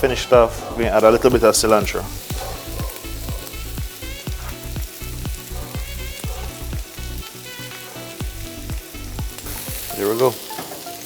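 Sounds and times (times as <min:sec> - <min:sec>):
background music with steady beat: 0:00.0 - 0:11.0
food sizzling in a frying pan: 0:00.0 - 0:11.0.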